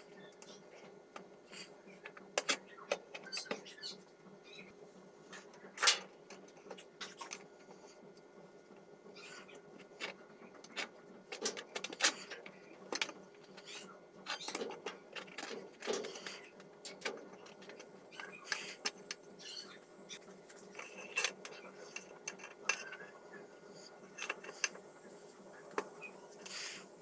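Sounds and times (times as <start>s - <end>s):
faint steady hum: 0.0s - 27.0s
hand tools clicking and knocking: 20.6s - 23.1s.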